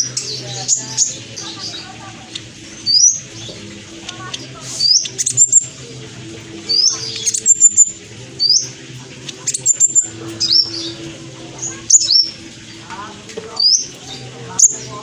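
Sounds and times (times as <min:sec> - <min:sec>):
bird chirping: 0:00.0 - 0:05.8, 0:06.6 - 0:15.0.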